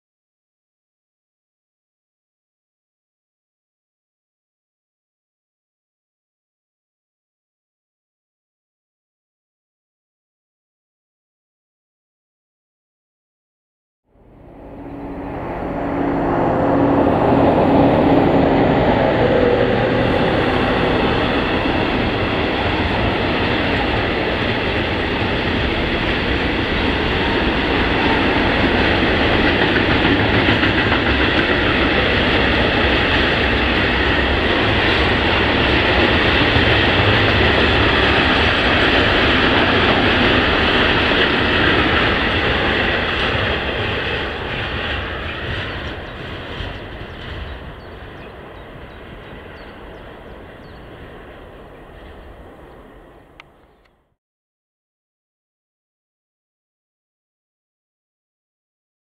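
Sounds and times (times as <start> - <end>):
freight train rumbling past: 14.1 - 53.9.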